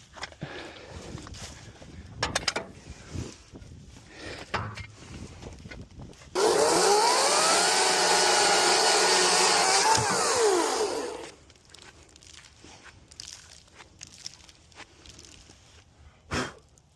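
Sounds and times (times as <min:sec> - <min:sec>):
sawmill engine revving: 0:06.4 - 0:11.4.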